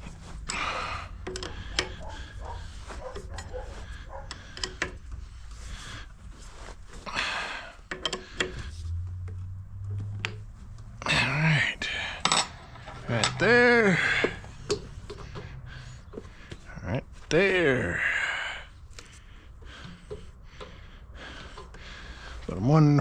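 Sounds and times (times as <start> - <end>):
hand tools clicking and knocking: 0.0 - 5.7, 7.2 - 10.9, 11.9 - 16.7, 19.0 - 21.8
rustling: 1.3 - 7.1
low hum: 8.2 - 16.5.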